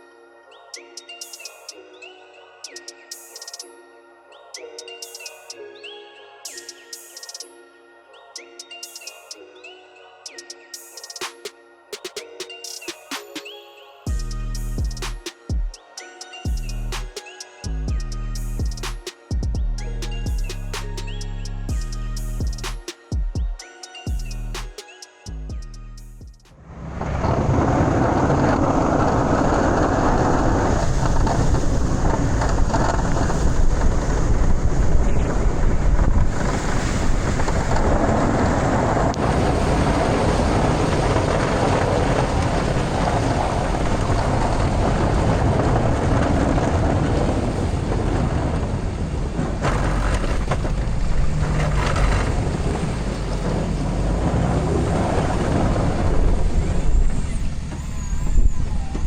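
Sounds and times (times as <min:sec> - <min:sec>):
loud rushing noise: 0:26.5 - 0:34.8
diesel pickup truck running: 0:26.6 - 0:33.9, 0:36.0 - 0:59.0.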